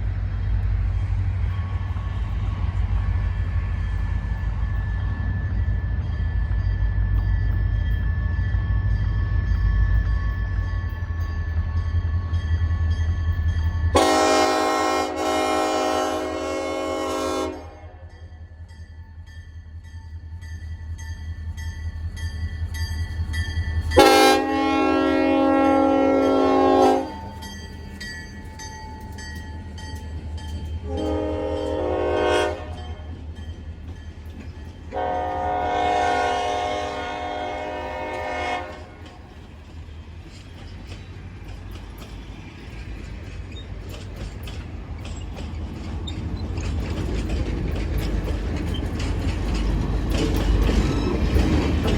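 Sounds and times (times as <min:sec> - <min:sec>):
locomotive air horn: 0:13.9 - 0:18.1, 0:24.0 - 0:27.4, 0:30.8 - 0:32.8, 0:34.9 - 0:39.0.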